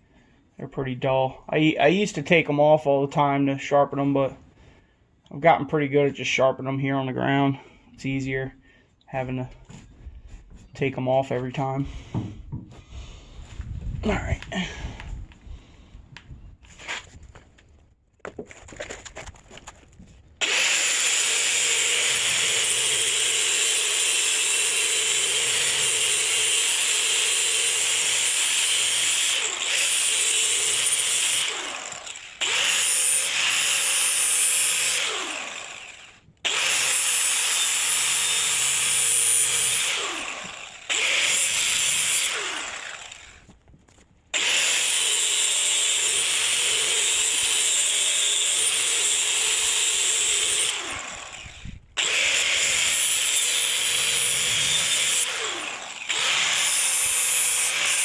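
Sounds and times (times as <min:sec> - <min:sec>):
power grinder sharpening steel blades: 0:20.4 - 0:43.2, 0:44.4 - 0:58.0.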